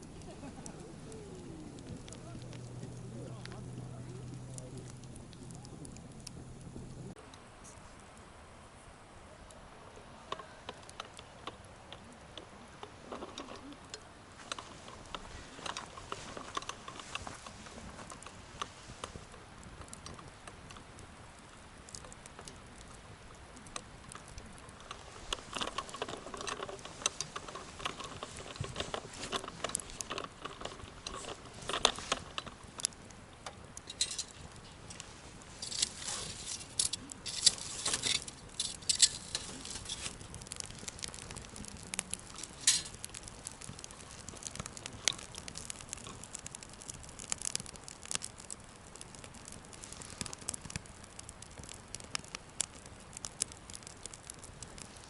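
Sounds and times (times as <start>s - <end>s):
campfire crackling: 0.0s - 55.0s
faint steady hiss: 0.0s - 55.0s.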